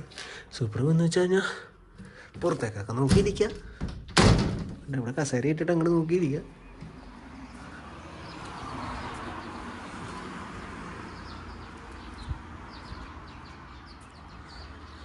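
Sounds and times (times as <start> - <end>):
outdoor background noise: 0.0 - 15.0
small birds chirping: 5.1 - 15.0.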